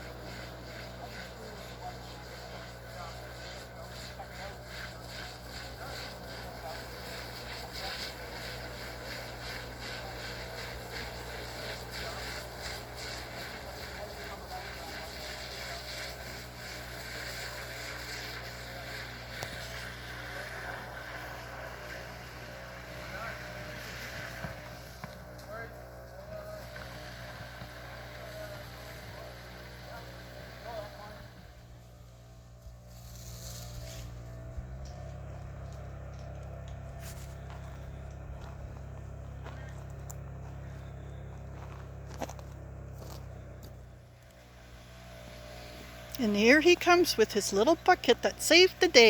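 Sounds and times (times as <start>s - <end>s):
hiss: 0.0s - 25.5s, 26.3s - 31.6s
engine running steadily: 0.0s - 49.0s.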